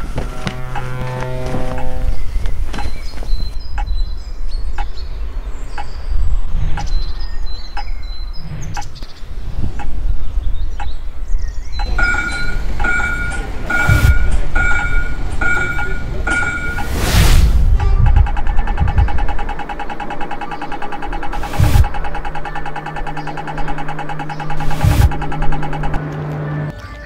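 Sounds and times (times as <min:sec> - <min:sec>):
low traffic rumble: 0:00.0 - 0:26.8
birds chirping: 0:00.0 - 0:27.0
regular ticking: 0:06.7 - 0:26.7
repeating electronic beep: 0:11.8 - 0:26.7.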